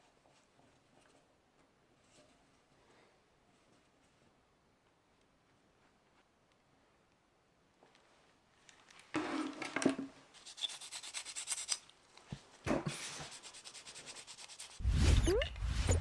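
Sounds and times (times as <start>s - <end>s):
hand rubbing on a part: 10.4s - 11.8s, 12.7s - 16.0s
low sound with rising squeak: 14.8s - 16.0s.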